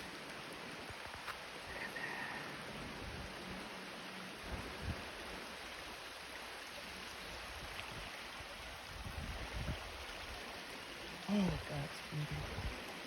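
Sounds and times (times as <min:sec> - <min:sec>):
waterfall rushing: 0:11.2 - 0:13.0.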